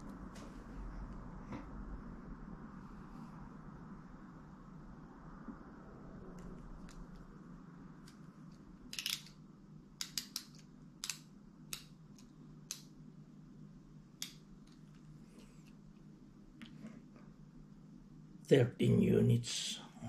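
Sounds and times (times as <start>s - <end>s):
faint steady hum: 0.0s - 20.0s
plastic parts clicking: 8.9s - 9.4s, 10.0s - 12.9s.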